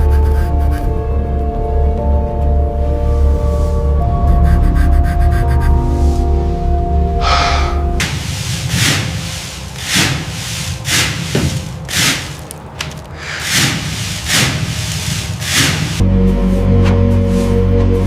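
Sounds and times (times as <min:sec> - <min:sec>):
abrasive rubbing strokes: 0:07.2 - 0:16.1, 0:16.8 - 0:17.8.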